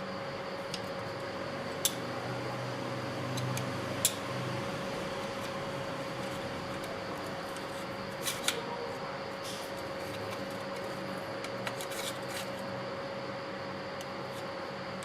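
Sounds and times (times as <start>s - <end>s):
faint hum: 0.0s - 15.0s
tools clicking and scraping: 11.4s - 12.6s.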